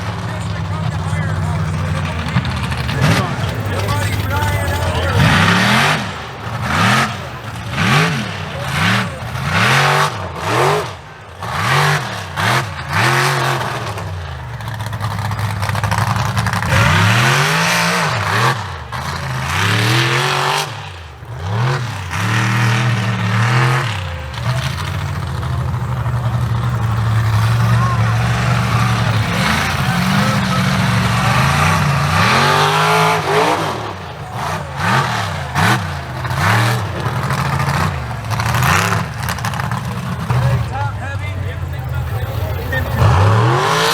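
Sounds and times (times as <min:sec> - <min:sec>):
loud rushing bursts: 0:00.0 - 0:09.8
truck engine revving: 0:00.0 - 0:43.9.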